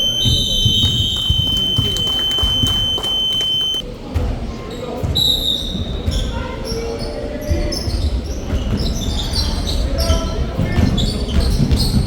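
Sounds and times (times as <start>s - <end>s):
sneakers squeaking: 0.0s - 3.8s
basketball bouncing on hardwood floor: 0.2s - 2.0s.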